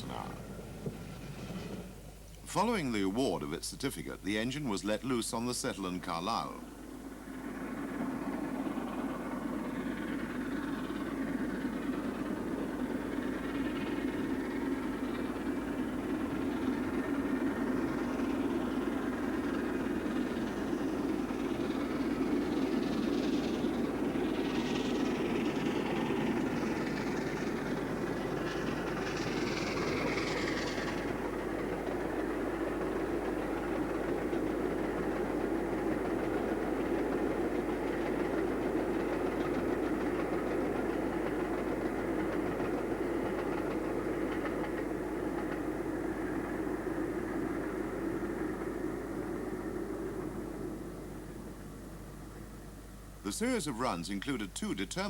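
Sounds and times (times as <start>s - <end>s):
steam train rumbling on rails: 0.0s - 55.0s
steam hiss: 9.8s - 36.8s.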